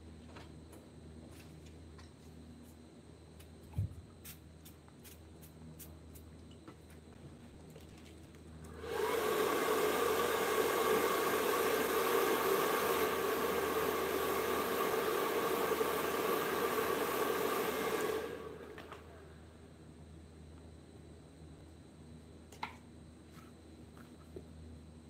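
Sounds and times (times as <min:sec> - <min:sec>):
power tool motor running: 0:08.7 - 0:19.1.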